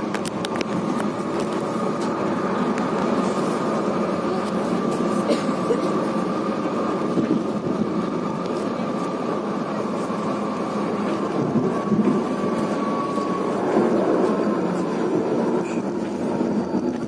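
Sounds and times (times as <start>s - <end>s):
high whine: 0.0s - 17.0s
train running rumble: 0.0s - 17.0s.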